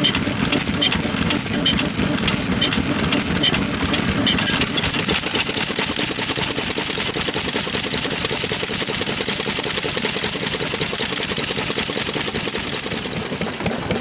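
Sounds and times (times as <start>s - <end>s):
stationary engine clattering: 0.0s - 14.0s.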